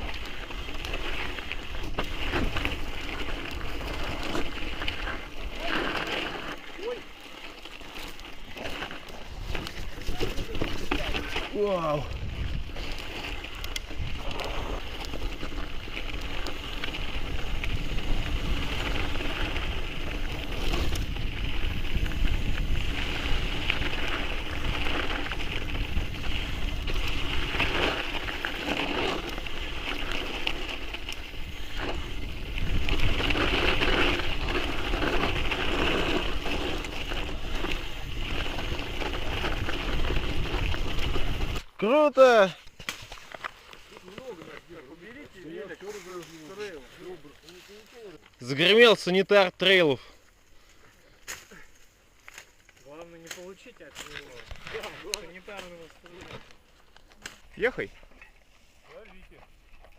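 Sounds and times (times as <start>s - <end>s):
bike rattling: 0.0s - 59.9s
bike tyre noise: 0.0s - 59.9s
wind buffeting microphone: 11.8s - 13.1s, 15.5s - 28.4s, 31.3s - 41.6s.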